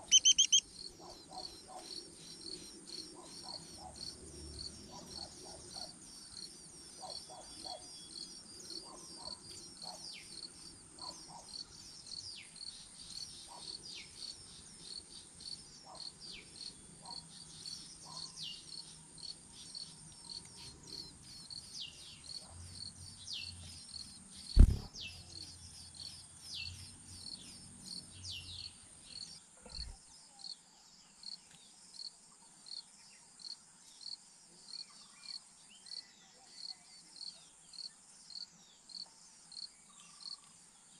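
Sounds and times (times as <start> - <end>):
high falling whistled calls: 0.0 - 0.6
crickets chirping: 0.0 - 40.9
loud thump: 24.6 - 24.9.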